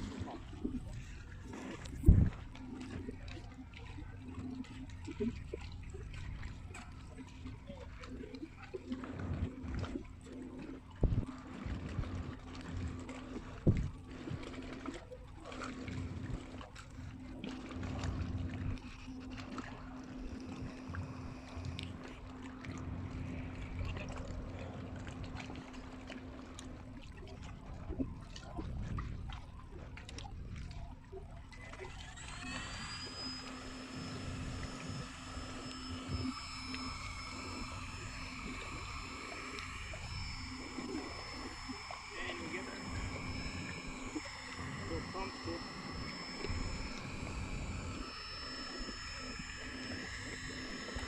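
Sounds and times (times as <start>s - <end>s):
high-pitched electric whine: 0.0s - 28.9s, 31.4s - 51.0s
water lapping at inflatable boat: 0.0s - 51.0s
electric thruster humming: 9.0s - 28.0s, 31.6s - 51.0s.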